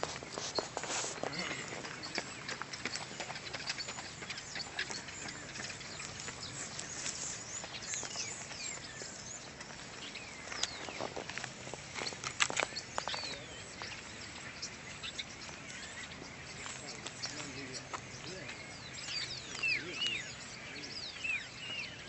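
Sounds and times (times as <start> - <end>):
footsteps on dry leaves: 0.0 - 20.7
outdoor background noise: 0.0 - 22.0
small birds chirping: 0.0 - 22.0.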